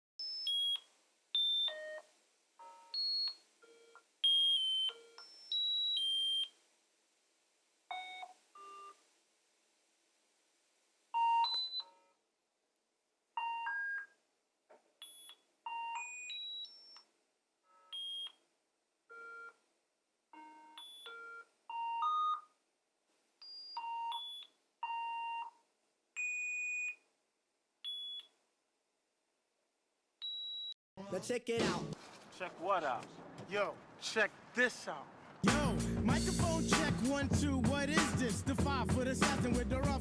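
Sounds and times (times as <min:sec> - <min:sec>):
short electronic beeps: 0:11.3 - 0:11.9, 0:30.2 - 0:30.8.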